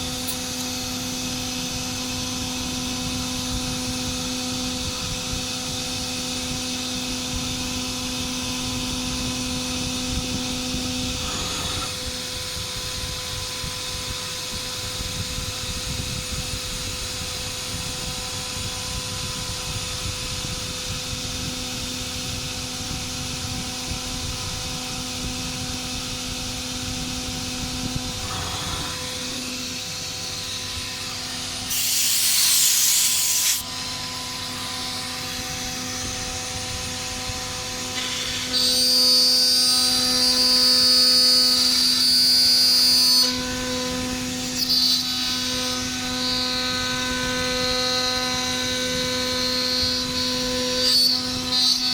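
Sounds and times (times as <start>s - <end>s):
router spindle humming: 0.0s - 15.2s, 20.8s - 42.3s
high machine whine: 0.0s - 41.6s
hissing cut: 11.1s - 12.2s, 27.8s - 33.7s.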